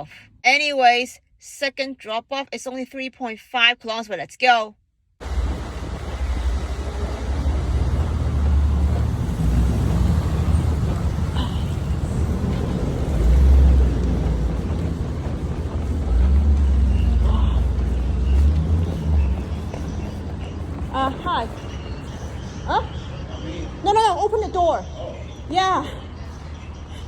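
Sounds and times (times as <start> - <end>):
car engine and tyre rumble: 5.2 - 27.0.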